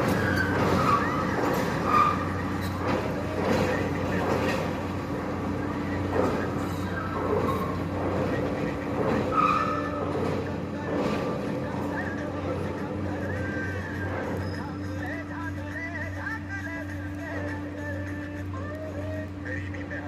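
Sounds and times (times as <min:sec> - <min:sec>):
short high squeals: 0:00.0 - 0:03.0, 0:09.2 - 0:10.5, 0:14.2 - 0:15.0
machinery hum: 0:00.0 - 0:20.0.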